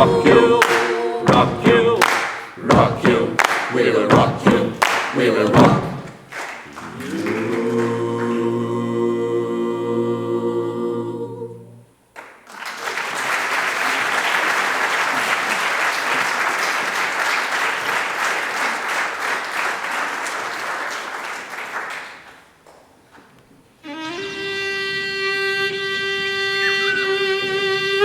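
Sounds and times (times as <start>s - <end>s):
audience applauding: 0.0s - 8.4s, 12.2s - 22.9s
choir singing a cappella: 0.0s - 12.0s.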